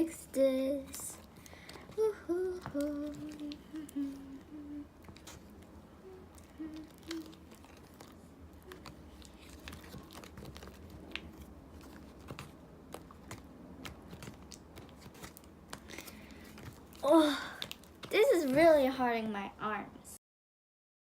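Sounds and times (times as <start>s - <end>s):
slime stirred with wet clicks: 5.0s - 5.7s, 6.3s - 17.0s, 17.6s - 18.6s.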